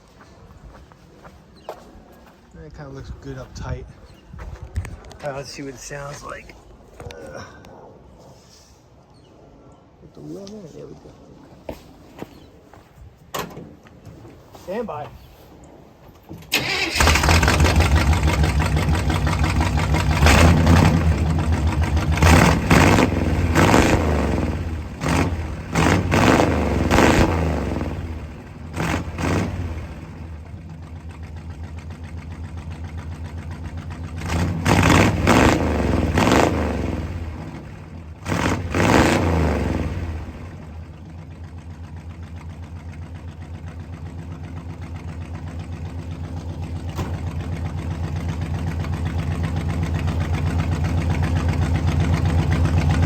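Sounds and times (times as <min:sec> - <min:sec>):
engine idling unevenly: 0:16.5 - 0:23.6, 0:28.0 - 0:35.3, 0:39.9 - 0:53.0
engine revving: 0:16.5 - 0:41.7.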